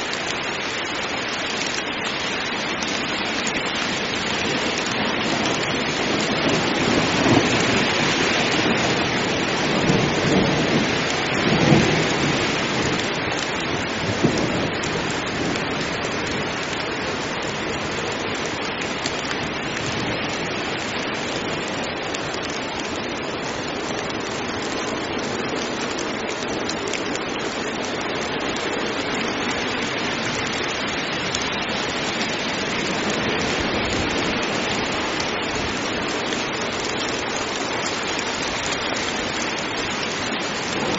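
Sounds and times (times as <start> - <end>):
heavy rain pouring: 0.0 - 40.9
low thunder rumbling: 5.2 - 13.1.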